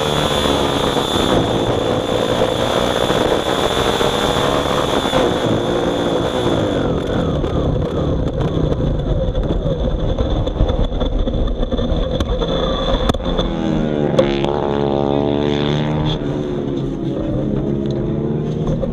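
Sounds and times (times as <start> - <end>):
small engine running: 0.0 - 9.8.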